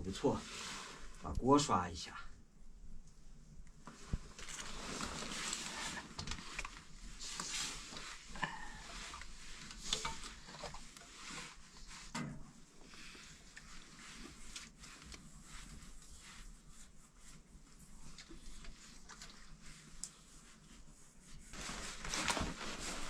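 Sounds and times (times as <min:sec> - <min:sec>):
pot being scrubbed: 0:07.1 - 0:12.1.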